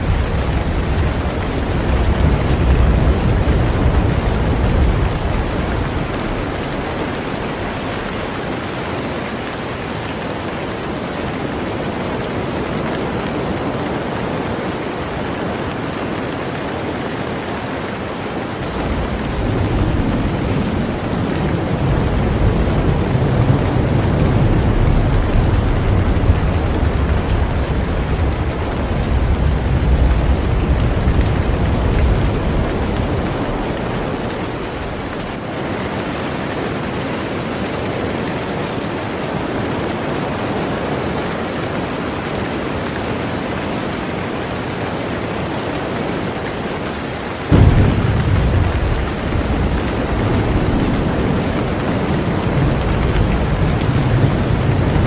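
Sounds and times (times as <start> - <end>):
heavy rain on a boat: 0.0 - 55.0
low rumble: 18.7 - 35.4, 47.5 - 55.0.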